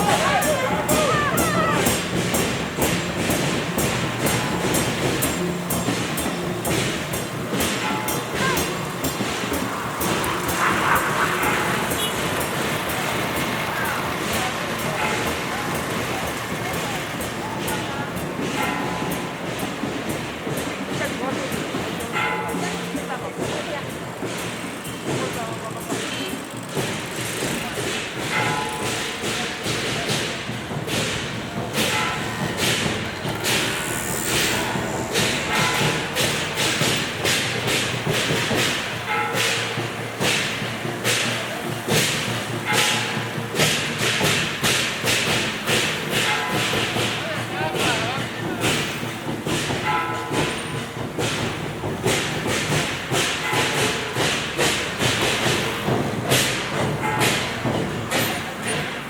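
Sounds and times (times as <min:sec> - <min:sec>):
low drum thumps: 0:00.0 - 0:13.3
drum thumps: 0:00.0 - 0:59.0
cymbal crash: 0:26.7 - 0:58.8.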